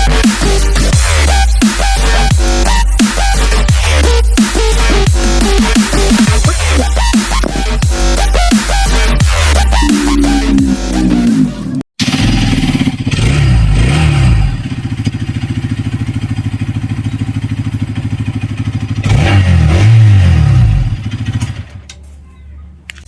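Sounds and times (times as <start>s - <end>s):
motorcycle engine revving: 4.6s - 21.8s
motorcycle engine idling: 14.6s - 19.1s.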